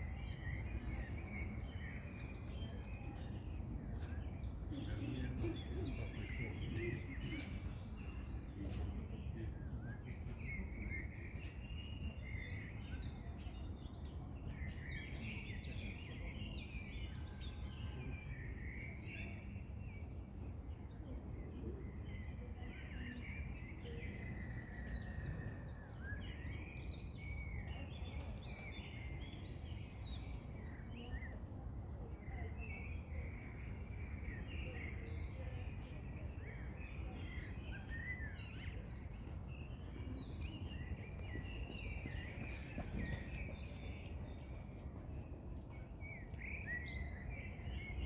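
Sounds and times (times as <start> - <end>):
songbirds chirping and singing: 0.0 - 16.9.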